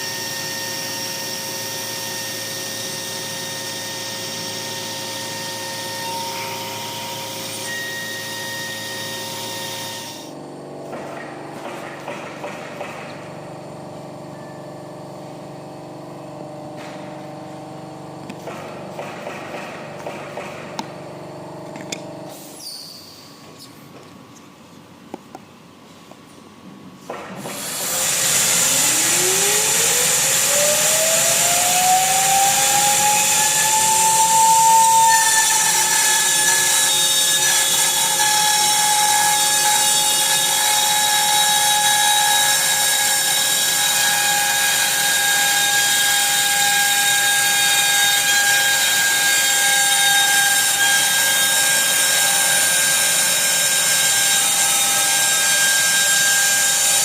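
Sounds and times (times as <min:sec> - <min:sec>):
router spindle whine: 0:00.0 - 0:10.5, 0:27.4 - 0:57.0.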